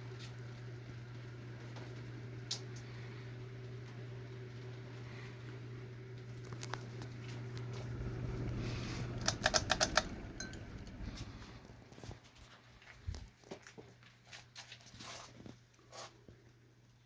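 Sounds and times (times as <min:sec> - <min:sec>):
ceiling fan motor humming: 0:00.0 - 0:13.3
sharp clicks: 0:09.2 - 0:11.0.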